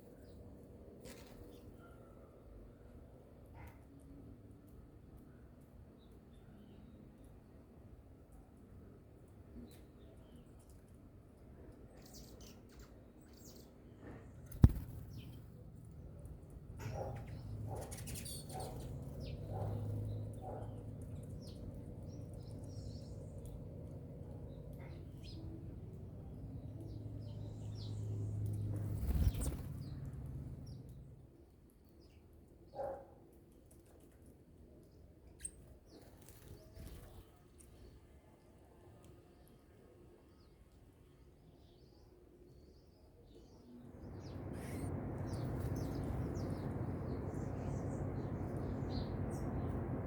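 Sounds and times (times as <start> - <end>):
small birds chirping: 11.7 - 31.2, 41.6 - 50.0
low hum: 14.5 - 31.2, 43.8 - 50.0
low rumble: 43.9 - 50.0.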